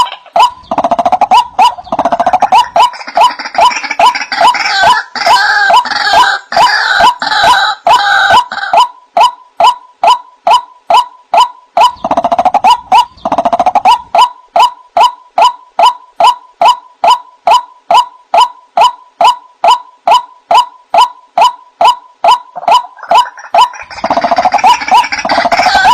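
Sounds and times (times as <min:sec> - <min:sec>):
harsh croaking notes: 0:00.0 - 0:25.9
waterhen wak calls: 0:00.0 - 0:25.9
bird rattling call: 0:11.8 - 0:14.3.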